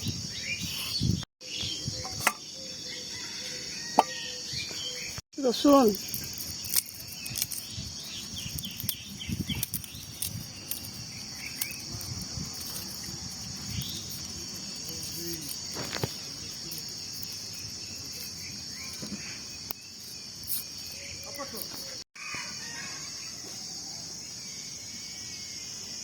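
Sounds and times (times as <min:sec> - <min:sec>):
insects shrilling: 0:03.1 - 0:23.4.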